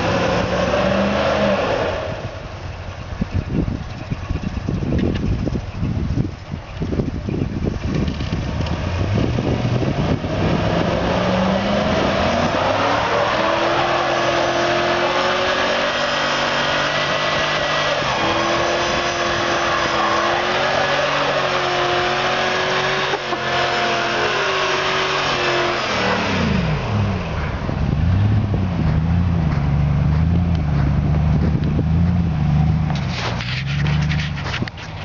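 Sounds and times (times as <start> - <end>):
pickup engine revving at limiter: 0.0 - 2.4, 7.9 - 34.2.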